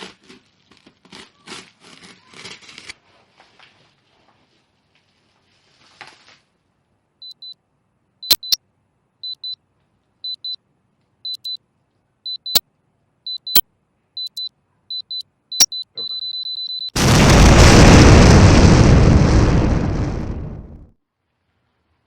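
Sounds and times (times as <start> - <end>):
brief rustle: 2.4 - 6.5
short high electronic beeps: 7.2 - 7.5, 8.3 - 8.6, 9.2 - 9.6, 10.3 - 10.6, 11.3 - 11.6, 12.3 - 12.6, 13.3 - 13.6, 14.2 - 17.0
sharp clicks: 8.3 - 8.6.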